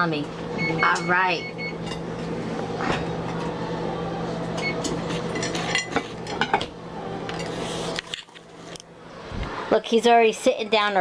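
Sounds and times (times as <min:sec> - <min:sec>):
appliance hum: 0:00.0 - 0:11.0
dishes and utensils clinking: 0:04.5 - 0:06.7, 0:07.3 - 0:08.2.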